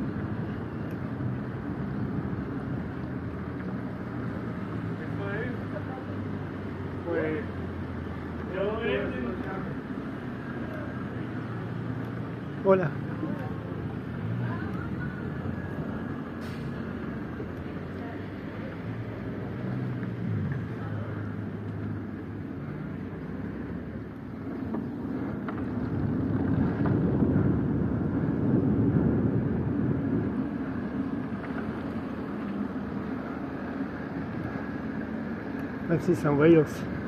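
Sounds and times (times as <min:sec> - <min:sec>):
steady low rumble: 0:00.0 - 0:37.0
faint voices: 0:12.6 - 0:19.4.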